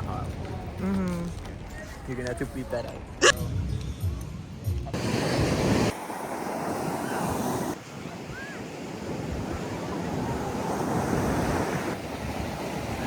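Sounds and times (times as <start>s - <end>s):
ocean surf washing in: 5.0s - 13.0s.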